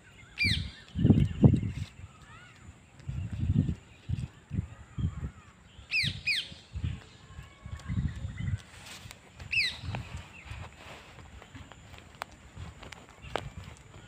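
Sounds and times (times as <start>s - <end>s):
sharp bird chirps: 0.0s - 7.1s, 9.5s - 10.7s.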